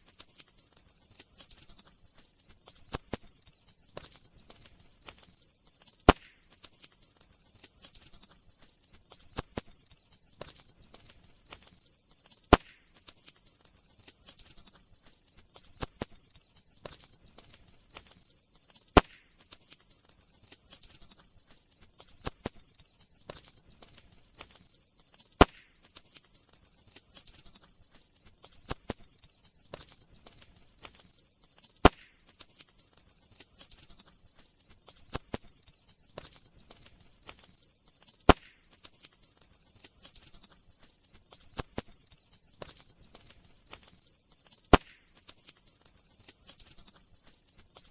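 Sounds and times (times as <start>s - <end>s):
faint hiss of fire: 0.0s - 47.9s
loud sharp pop: 6.1s - 6.4s, 12.5s - 12.8s, 19.0s - 19.3s, 25.4s - 25.7s, 31.8s - 32.2s, 38.3s - 38.6s, 44.7s - 45.0s.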